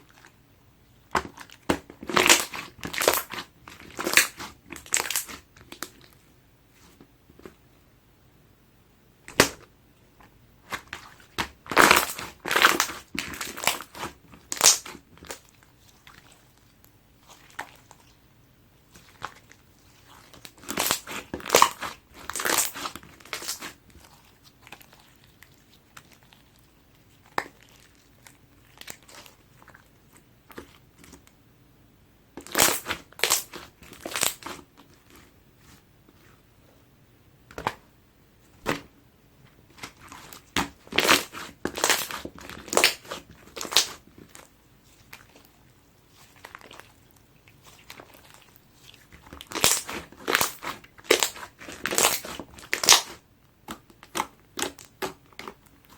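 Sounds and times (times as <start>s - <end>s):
slime squished by hand: 1.1s - 6.2s, 10.6s - 18.2s, 18.9s - 31.3s, 32.4s - 35.3s, 39.7s - 55.9s.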